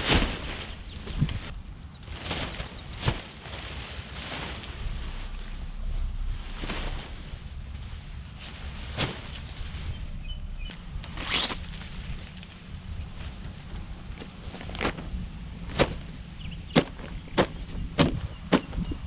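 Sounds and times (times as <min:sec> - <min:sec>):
wind buffeting microphone: 0:04.0 - 0:19.0.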